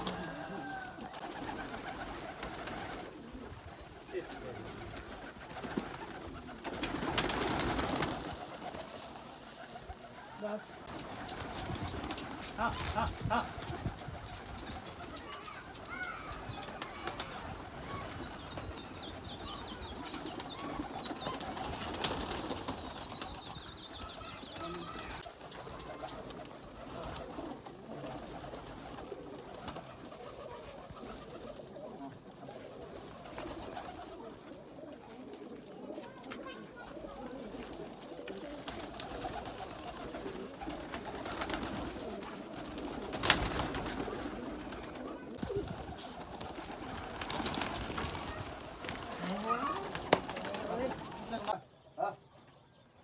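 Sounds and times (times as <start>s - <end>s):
pigeons cooing: 0.0s - 51.6s
high-pitched bird chirps: 10.9s - 21.6s.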